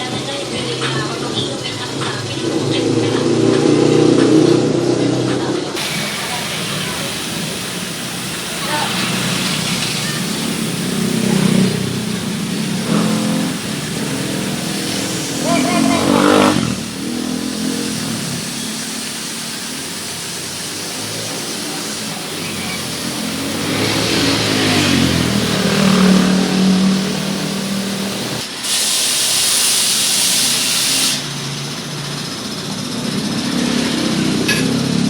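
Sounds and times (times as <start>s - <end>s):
car engine running: 0.0s - 28.6s
high hiss of water spray: 5.8s - 32.6s.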